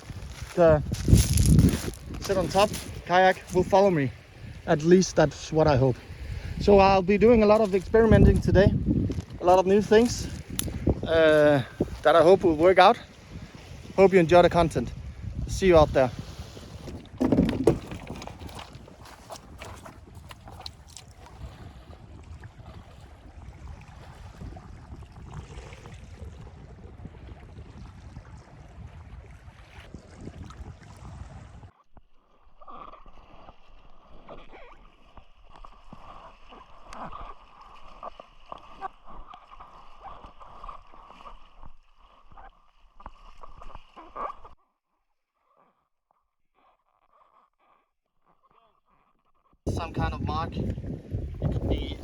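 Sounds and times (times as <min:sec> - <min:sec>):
water sloshing: 0:00.0 - 0:15.0, 0:15.6 - 0:24.5
wind on microphone: 0:00.0 - 0:31.7, 0:49.7 - 0:52.0.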